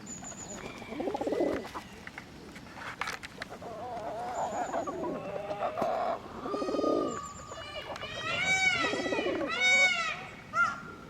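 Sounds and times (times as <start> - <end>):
wavering bird call: 6.4 - 10.9.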